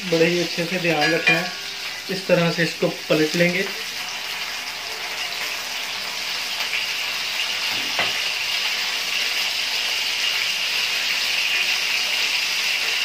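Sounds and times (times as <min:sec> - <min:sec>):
meat sizzling in hot oil: 0:00.0 - 0:13.0.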